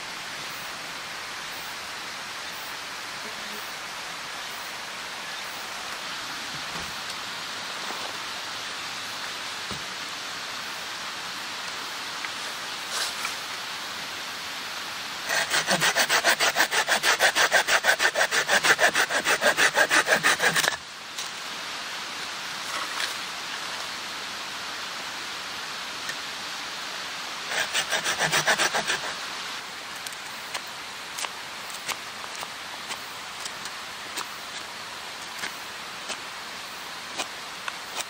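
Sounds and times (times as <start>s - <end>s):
hand saw cutting wood: 15.2s - 20.8s, 27.5s - 29.2s, 30.5s - 36.2s, 37.1s - 37.3s.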